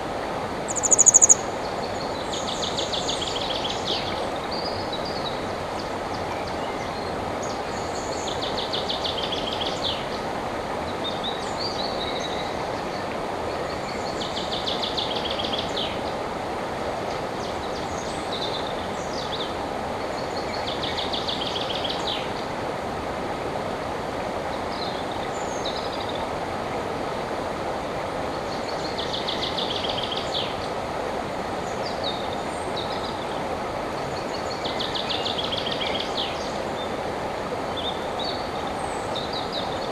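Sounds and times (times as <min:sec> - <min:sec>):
river water rushing: 0:00.0 - 0:39.9
high bird chirps: 0:00.7 - 0:01.4
songbird trilling: 0:00.7 - 0:01.5.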